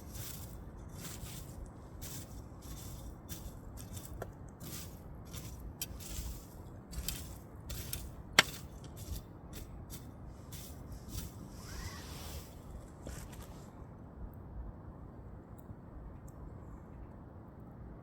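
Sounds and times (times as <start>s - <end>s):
firewood crackling: 0.0s - 11.8s.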